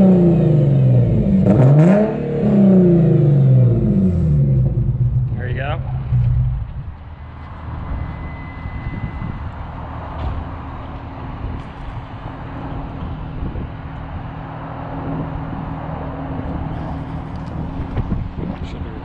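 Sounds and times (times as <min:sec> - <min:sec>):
car engine idling: 0:00.0 - 0:07.8, 0:09.6 - 0:19.0.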